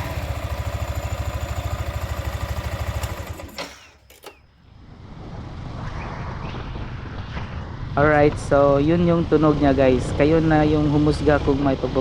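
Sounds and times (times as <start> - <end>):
motorcycle engine idling: 0.0 - 4.5.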